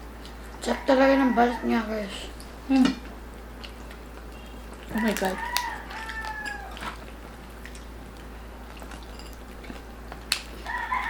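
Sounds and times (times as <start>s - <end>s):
rooster crowing: 0.6s - 2.1s, 4.9s - 6.9s, 10.6s - 11.0s
chewing crispy pork skin: 2.3s - 11.0s.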